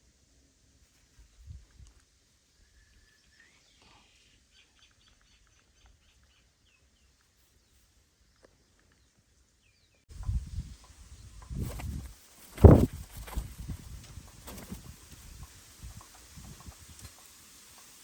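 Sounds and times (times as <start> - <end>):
small birds chirping: 0.8 - 18.0
low rustling and thumping: 11.4 - 16.7.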